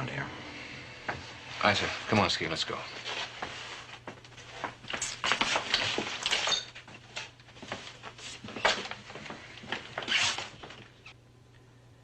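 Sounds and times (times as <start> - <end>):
steady low hum: 0.0 - 5.0.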